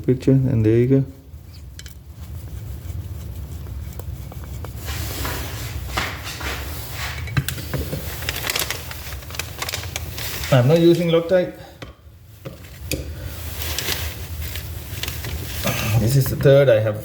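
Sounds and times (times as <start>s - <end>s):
low steady hum: 0.0s - 17.0s
screwdriver clicking and scraping metal: 1.5s - 4.8s.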